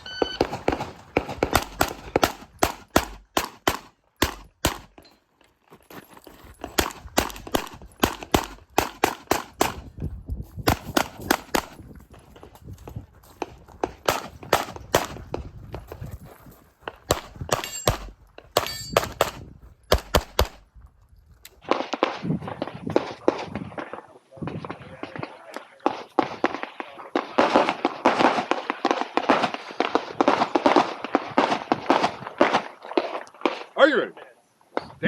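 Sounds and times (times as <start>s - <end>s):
handgun shots: 0.4s - 5.0s, 6.7s - 9.9s, 17.1s - 20.6s.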